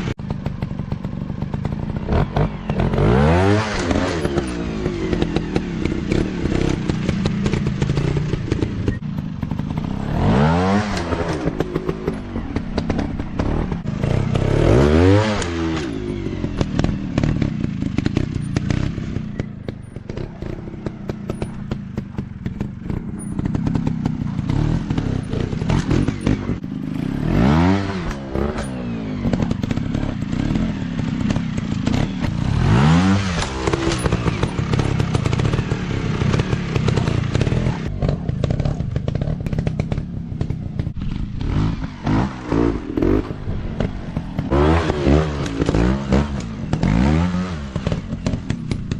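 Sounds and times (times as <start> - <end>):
dirt bike engines rumbling: 0.0 - 48.9.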